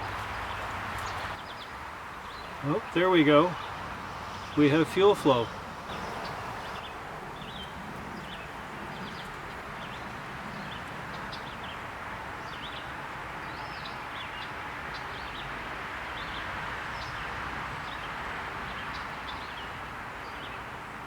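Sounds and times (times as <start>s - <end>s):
small birds chirping: 0.0s - 11.8s
steady background hiss: 1.2s - 9.0s.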